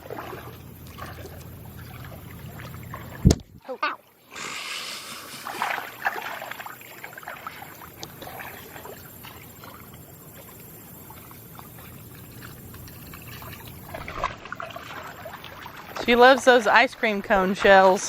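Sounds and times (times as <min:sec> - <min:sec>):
steady low rumble: 0:00.0 - 0:03.6, 0:06.4 - 0:15.9
water splashing and lapping: 0:00.0 - 0:18.0.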